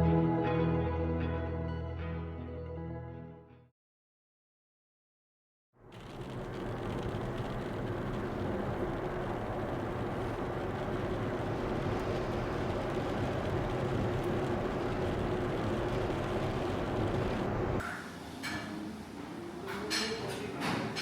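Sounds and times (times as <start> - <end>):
low droning hum: 5.9 - 17.8
vehicle engine rumble: 5.9 - 17.8.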